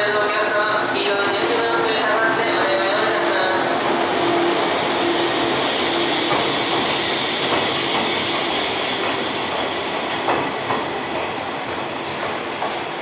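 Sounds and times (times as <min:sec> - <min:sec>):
train rolling: 0:00.0 - 0:13.0
high wheel squeal: 0:04.0 - 0:10.0.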